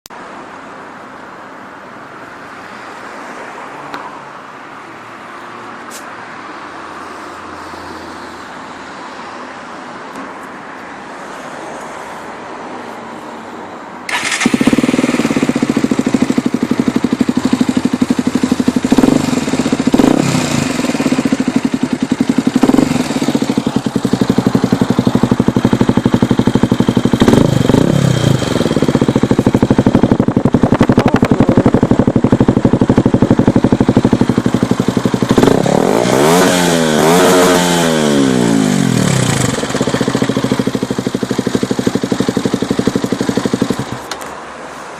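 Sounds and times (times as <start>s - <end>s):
motorcycle engine revving: 14.1s - 44.2s.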